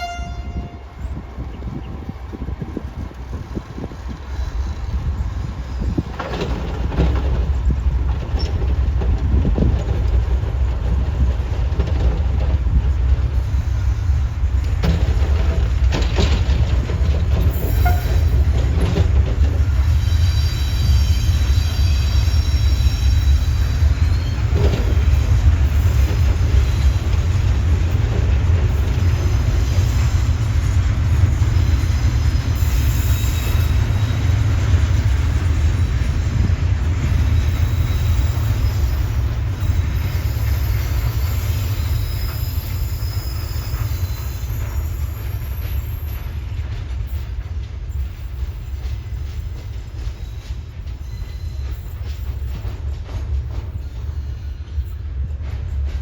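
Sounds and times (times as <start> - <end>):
train wheels rumbling on rail: 0.0 - 56.0
high wheel squeal: 3.8 - 6.4, 17.4 - 18.8, 19.6 - 25.0, 31.5 - 34.7, 35.3 - 46.5, 49.9 - 52.6.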